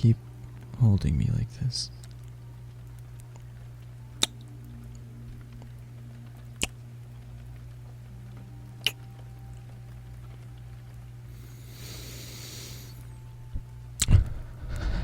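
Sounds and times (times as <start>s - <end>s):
steady low hum: 0.0s - 15.0s
wet lip smacking kisses: 8.8s - 9.0s.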